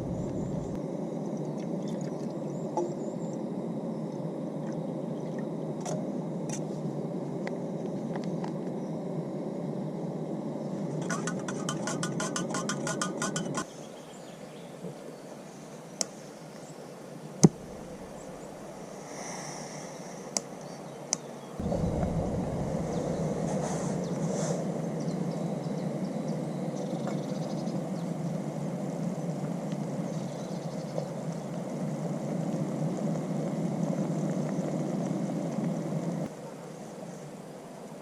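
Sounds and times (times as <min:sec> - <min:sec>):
low rushing noise: 0:00.0 - 0:00.8, 0:17.5 - 0:18.9, 0:21.6 - 0:26.1.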